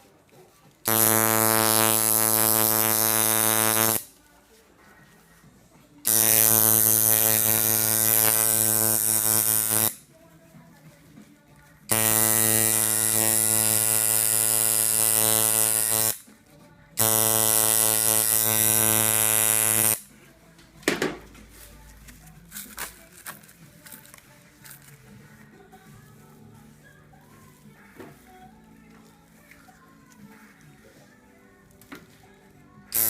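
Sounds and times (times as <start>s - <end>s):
tattoo machine buzzing: 0.9s - 4.1s, 6.1s - 10.0s, 11.9s - 16.2s, 17.0s - 20.1s.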